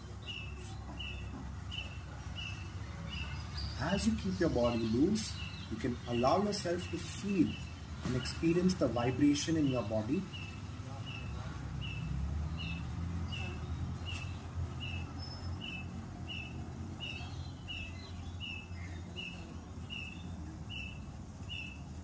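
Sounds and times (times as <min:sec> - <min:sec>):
bird chirping: 0:00.0 - 0:22.0.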